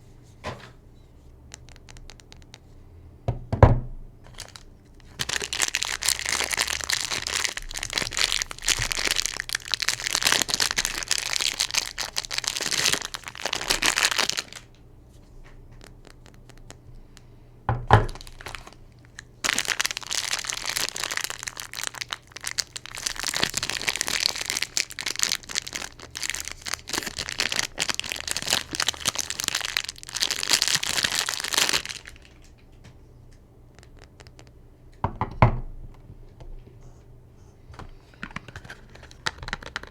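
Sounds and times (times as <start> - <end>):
wrappers crinkling and tearing: 4.3 - 14.8, 15.8 - 16.8, 18.1 - 32.7, 33.7 - 34.5, 38.1 - 39.9.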